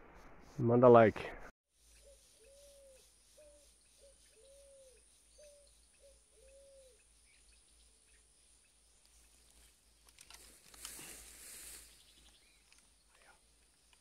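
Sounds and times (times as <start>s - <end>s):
bird cooing faintly: 2.1s - 7.0s.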